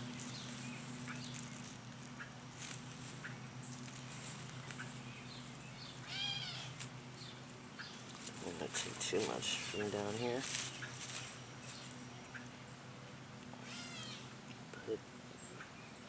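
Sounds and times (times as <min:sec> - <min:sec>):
animal call: 0:06.0 - 0:06.8, 0:13.6 - 0:14.3.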